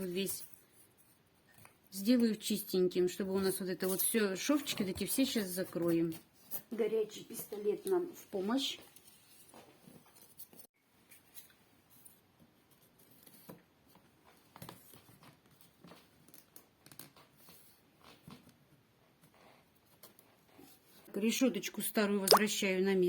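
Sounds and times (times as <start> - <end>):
small clicks and rustles of hands: 8.8 - 21.1.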